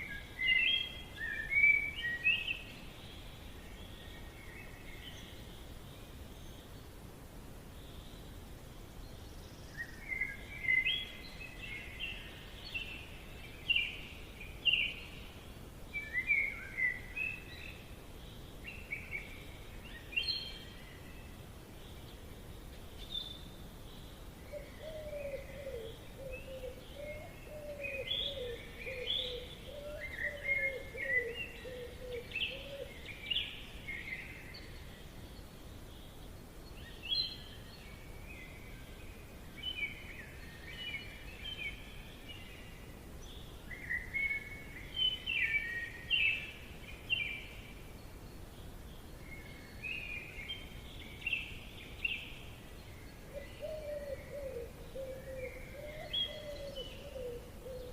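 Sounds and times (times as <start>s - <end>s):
faint hiss: 0.0s - 57.9s
birds chirping: 9.1s - 57.9s.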